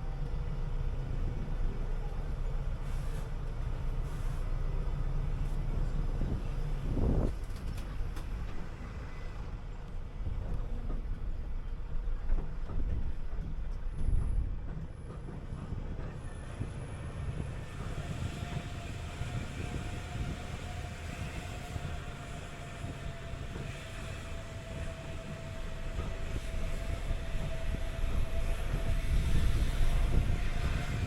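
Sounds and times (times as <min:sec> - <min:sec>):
bus engine and road rumble: 0:00.0 - 0:31.0.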